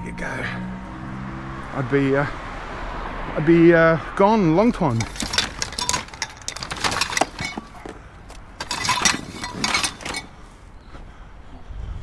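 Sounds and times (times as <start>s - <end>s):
scrap metal clanking: 4.8s - 10.8s.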